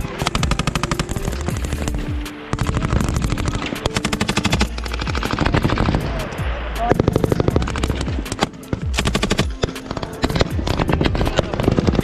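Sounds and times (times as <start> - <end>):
machine gun bursts: 0.0 - 6.2, 6.9 - 12.0.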